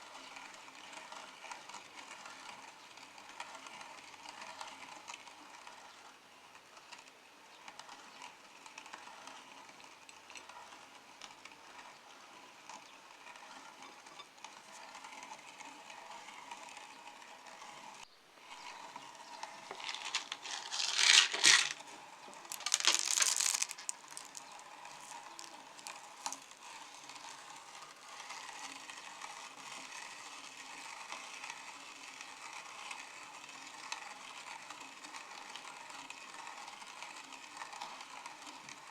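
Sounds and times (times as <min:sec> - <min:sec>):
meat grinder crushing candies: 0:18.5 - 0:38.9.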